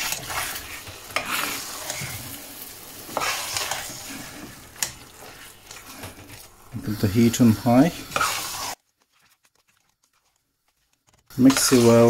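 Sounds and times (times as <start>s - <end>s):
meat sizzling in oil: 0.0s - 8.8s, 11.3s - 12.0s.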